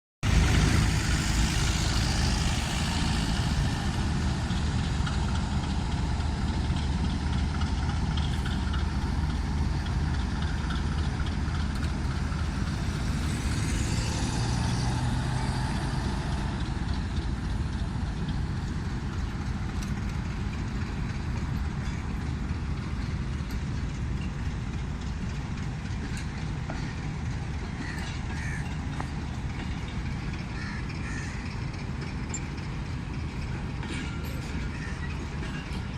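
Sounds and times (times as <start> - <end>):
diesel locomotive engine drone: 0.2 - 35.9.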